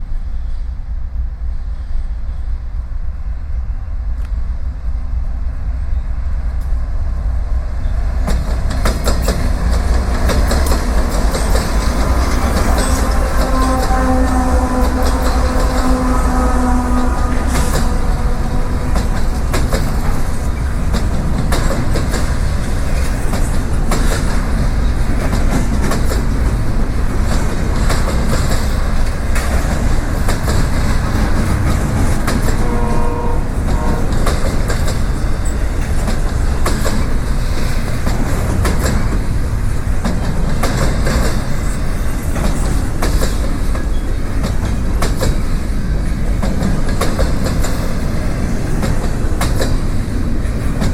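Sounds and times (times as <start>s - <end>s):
freight train rumble: 0.0s - 50.9s
wheels clicking over rails: 8.2s - 16.4s.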